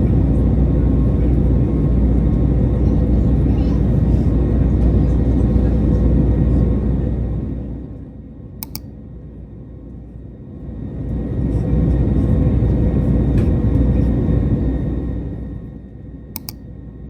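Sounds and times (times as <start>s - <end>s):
jet engines rumbling: 0.0s - 17.0s
sharp double click: 8.6s - 8.9s, 16.4s - 16.6s.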